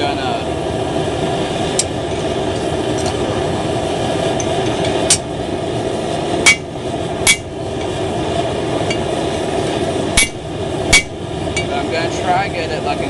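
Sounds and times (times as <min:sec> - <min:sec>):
steady rushing background noise: 0:00.0 - 0:13.0
hammer striking metal on anvil: 0:06.5 - 0:06.7, 0:07.3 - 0:07.5, 0:10.2 - 0:11.7.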